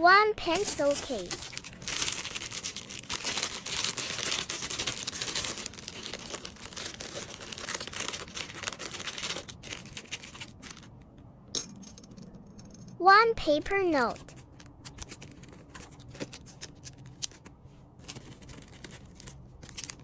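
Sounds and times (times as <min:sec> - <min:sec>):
packaging crinkling: 0:00.6 - 0:11.0, 0:14.1 - 0:20.0.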